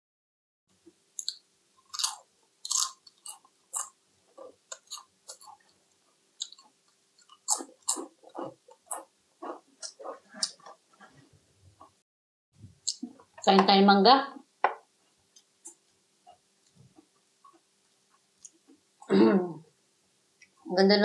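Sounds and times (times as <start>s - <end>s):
mouth clicks and crunches: 1.1s - 5.8s, 6.4s - 11.1s, 12.8s - 13.4s
person chewing and biting food: 1.2s - 5.8s, 6.4s - 10.9s.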